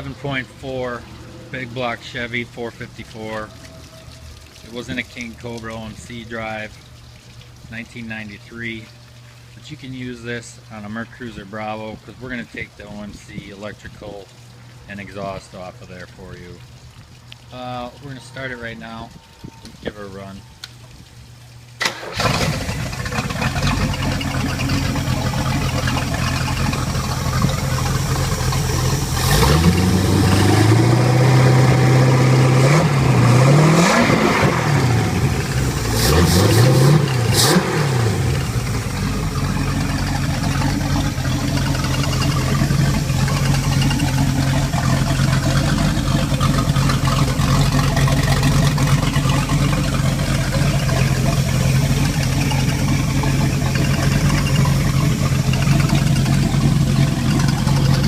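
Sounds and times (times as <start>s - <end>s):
boat engine idling and revving: 21.9s - 58.0s.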